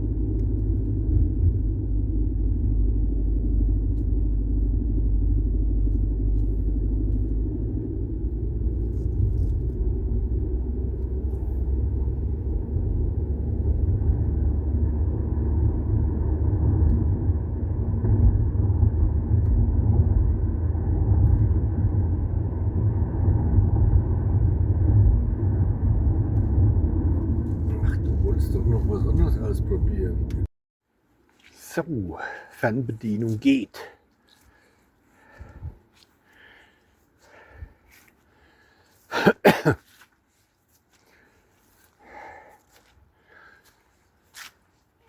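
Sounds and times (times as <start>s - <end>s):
car engine rumble: 0.0s - 30.5s.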